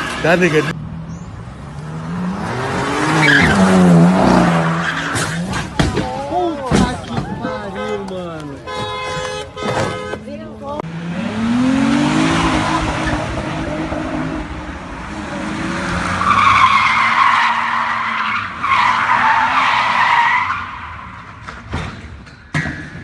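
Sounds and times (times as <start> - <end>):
car engine revving: 0.0 - 5.8, 10.8 - 21.4.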